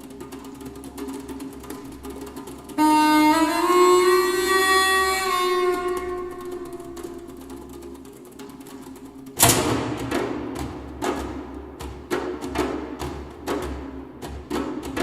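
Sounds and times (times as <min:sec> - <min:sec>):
loud held note sliding up: 0:02.8 - 0:07.3.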